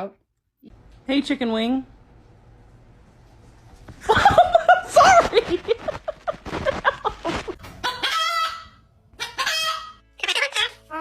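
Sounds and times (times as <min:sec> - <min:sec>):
parrot clucking: 0:07.6 - 0:11.0
parrot crowing calls: 0:07.8 - 0:11.0.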